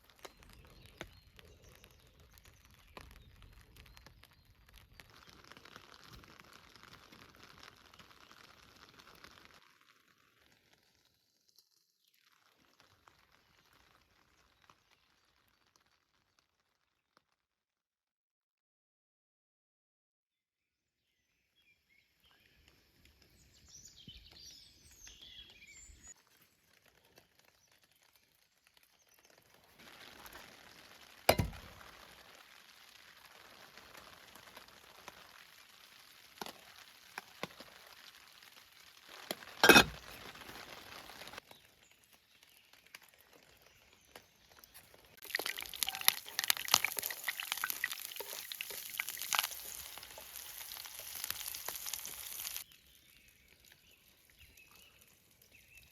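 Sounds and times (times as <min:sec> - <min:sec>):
food sizzling in hot pan: 0:00.0 - 0:16.4, 0:25.8 - 0:55.9
cookware clinks and knocks: 0:39.6 - 0:40.0.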